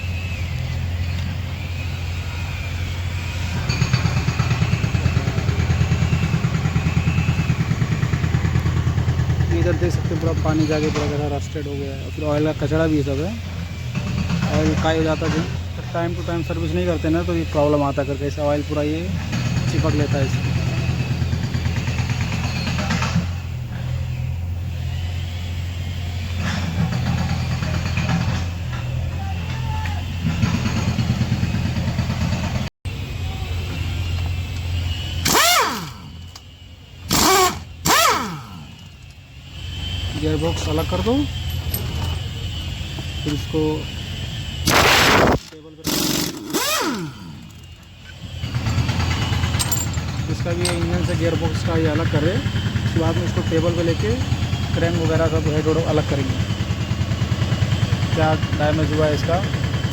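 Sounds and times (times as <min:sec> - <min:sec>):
engine running: 0:00.0 - 0:59.9
short clinks: 0:34.6 - 0:43.9, 0:44.7 - 0:51.8.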